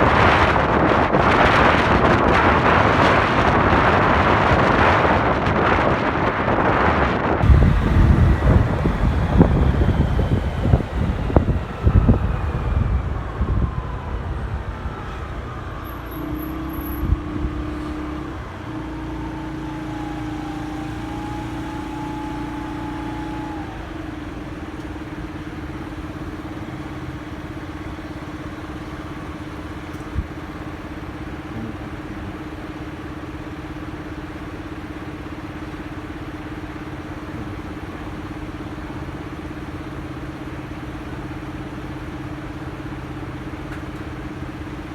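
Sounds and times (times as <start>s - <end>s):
motorcycle engine slowing and idling: 7.0s - 37.4s.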